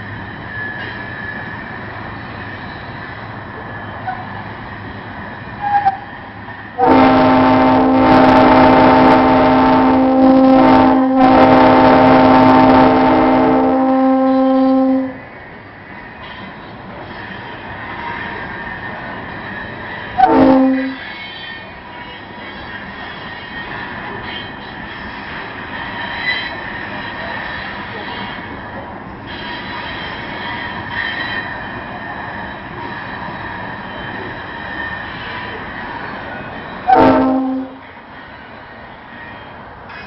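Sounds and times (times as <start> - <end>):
freight train rumble: 0.0 - 40.0
locomotive horn blasts: 6.8 - 15.2, 20.2 - 21.0, 36.9 - 37.8.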